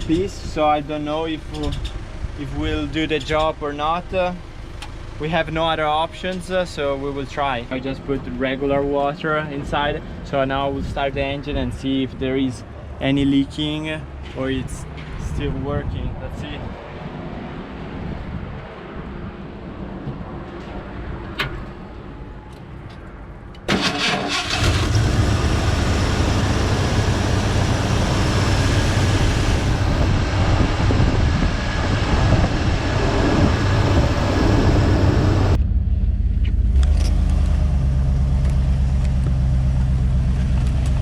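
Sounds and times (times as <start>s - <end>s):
truck engine starting and running: 0.0s - 10.0s, 20.8s - 41.0s.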